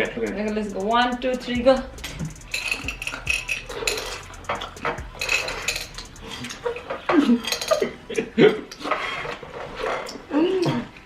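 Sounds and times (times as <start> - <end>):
candies clattering in a dish: 2.5 - 8.1.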